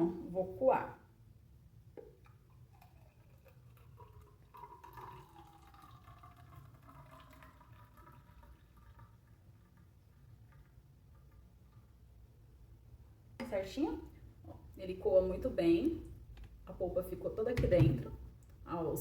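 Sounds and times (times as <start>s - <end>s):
juice trickling into a cup: 2.0s - 12.8s.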